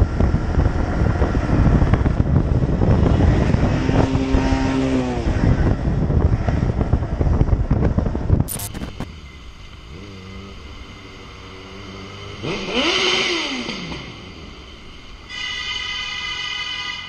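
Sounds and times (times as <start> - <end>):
loud wind noise: 0.0 - 9.1
clicks: 8.5 - 9.1.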